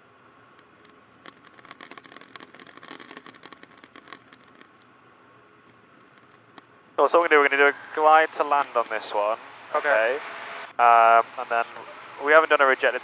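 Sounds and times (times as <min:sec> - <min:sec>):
crackling clicks: 0:00.4 - 0:13.0
headset intercom hiss: 0:07.0 - 0:13.0.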